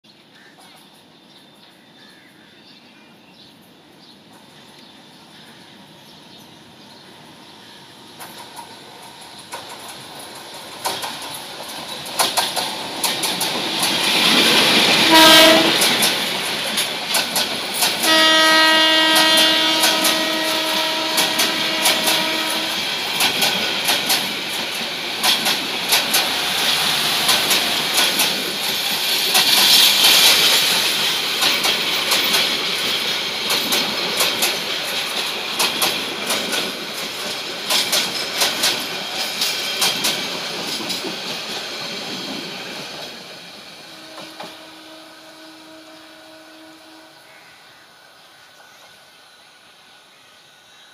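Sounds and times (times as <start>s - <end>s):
train rumble: 4.2s - 47.3s
wheels clattering over rail joints: 8.2s - 18.2s, 21.2s - 43.2s
train horn blasts: 14.9s - 16.0s, 18.0s - 23.0s, 43.9s - 47.4s.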